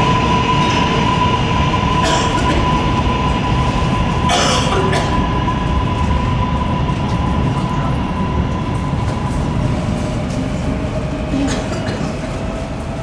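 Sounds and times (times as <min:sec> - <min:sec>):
subway train rumble: 0:00.0 - 0:13.0.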